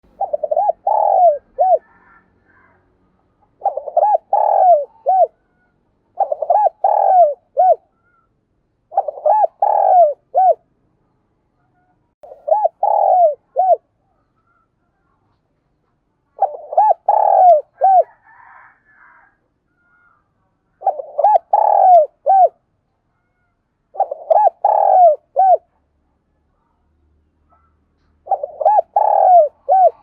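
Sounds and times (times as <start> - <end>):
dove cooing: 0.1 - 2.7, 3.5 - 5.4, 6.1 - 7.8, 8.9 - 10.6, 12.2 - 13.9, 16.4 - 18.7, 20.8 - 22.6, 23.9 - 25.7, 28.2 - 30.0.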